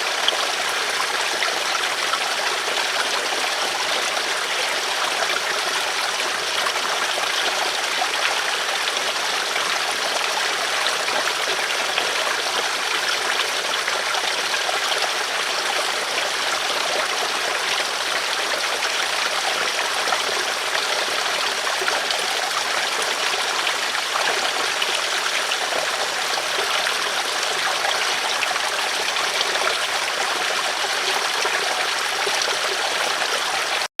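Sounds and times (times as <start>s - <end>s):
stream rushing over stones: 0.0s - 33.9s.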